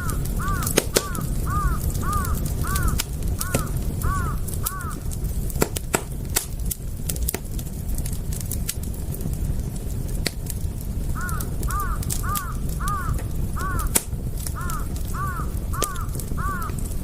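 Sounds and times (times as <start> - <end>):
bird calling: 0.0 - 5.0, 11.2 - 13.9, 14.6 - 16.8
campfire crackling and popping: 0.0 - 17.0.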